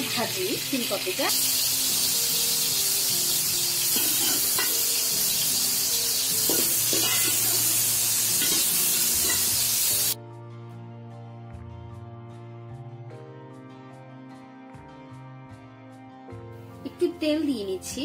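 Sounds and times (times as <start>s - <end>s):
vegetables sizzling in oil: 0.0s - 10.2s
soft background music: 0.0s - 18.0s
spatula scraping a pan: 6.4s - 7.8s.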